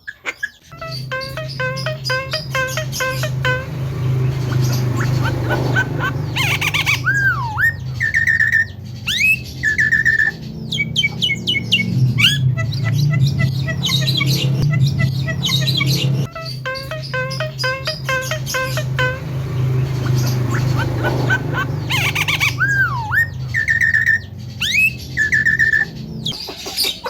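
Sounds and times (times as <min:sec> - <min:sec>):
myna squawks and whistles: 0:20.2 - 0:27.0.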